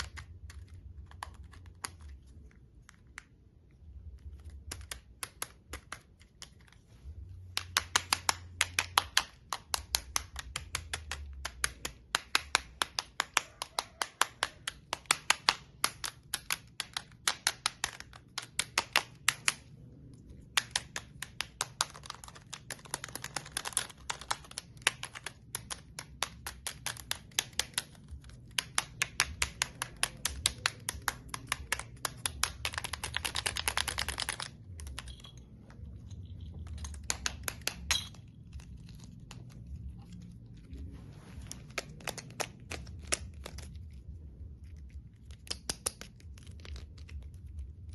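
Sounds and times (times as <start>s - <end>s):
sensory toy clicking rapidly: 7.5s - 35.4s.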